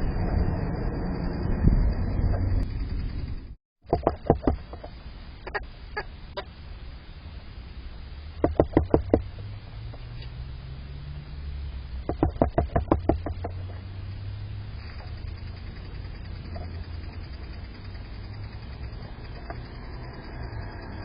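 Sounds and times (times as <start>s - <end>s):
woodpecker pecking sharp knocks: 3.9s - 4.9s, 8.4s - 9.3s, 12.1s - 13.7s.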